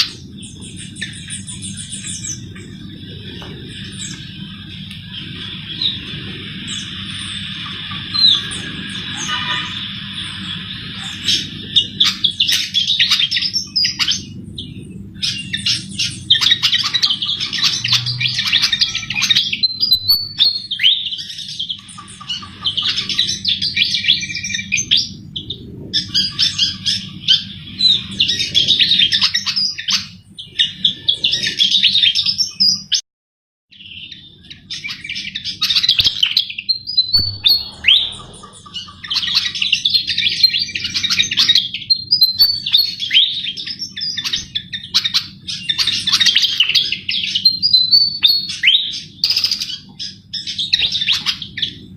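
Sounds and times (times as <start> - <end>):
low hum: 36.8 - 41.1.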